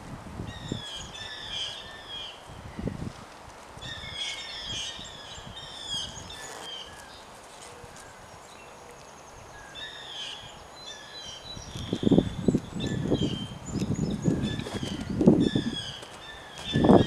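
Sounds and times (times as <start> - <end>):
small birds twittering: 3.8 - 17.0.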